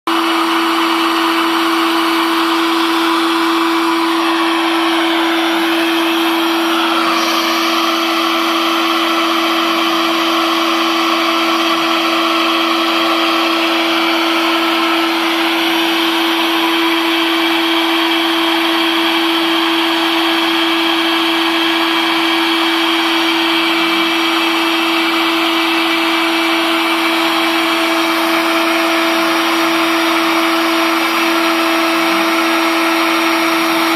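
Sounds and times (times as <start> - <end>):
router bit cutting: 0.1 - 33.9
router spindle motor humming: 0.1 - 33.9.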